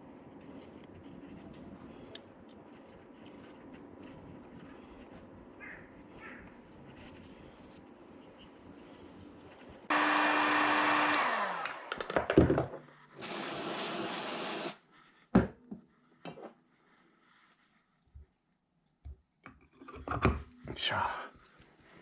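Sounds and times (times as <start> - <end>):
electric power tool motor: 9.9 - 12.1, 13.2 - 14.8.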